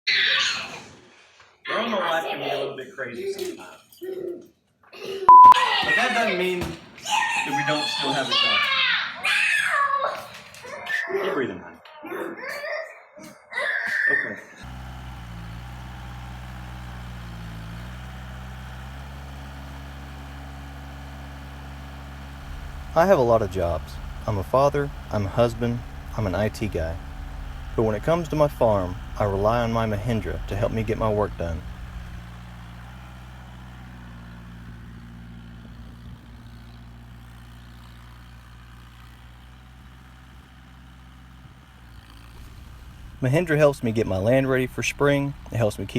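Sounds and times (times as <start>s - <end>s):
engine idling: 14.6s - 45.9s.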